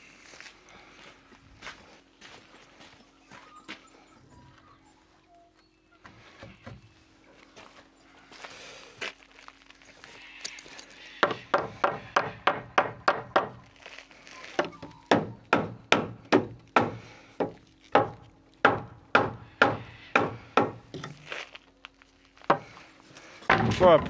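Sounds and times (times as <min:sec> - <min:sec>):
hammer blows on timber: 0:14.6 - 0:21.3.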